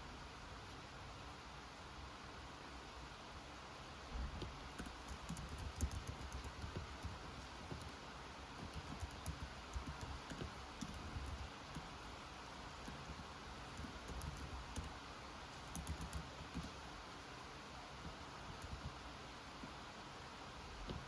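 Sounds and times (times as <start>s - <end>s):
computer keyboard typing: 4.4s - 17.1s, 18.0s - 19.8s.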